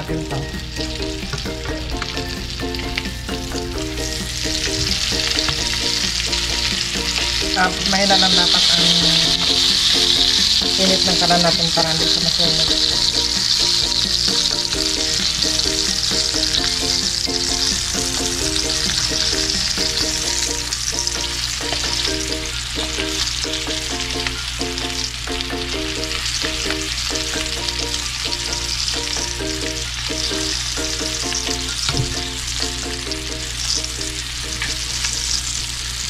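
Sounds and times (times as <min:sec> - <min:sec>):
repeating background music melody: 0:00.0 - 0:28.6
chicken frying in oil: 0:00.0 - 0:36.0.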